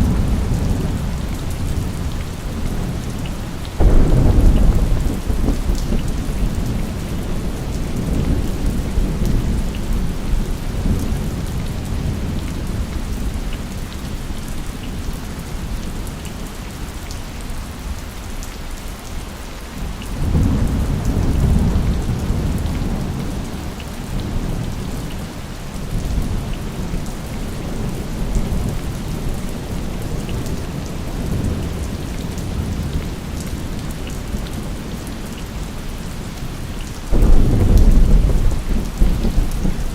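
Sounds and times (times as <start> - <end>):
rolling thunder: 0.0 - 3.0, 3.8 - 13.4, 37.1 - 39.9
heavy rain hissing: 0.0 - 18.0, 19.1 - 39.9.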